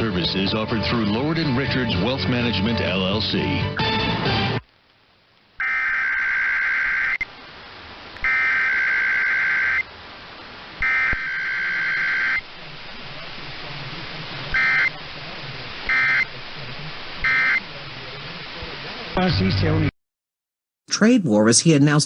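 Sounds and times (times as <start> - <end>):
radio hiss: 4.6 - 19.9
two-tone data squawk: 5.6 - 7.2, 8.2 - 9.9, 10.8 - 12.4, 14.5 - 15.0, 15.9 - 16.3, 17.2 - 17.7.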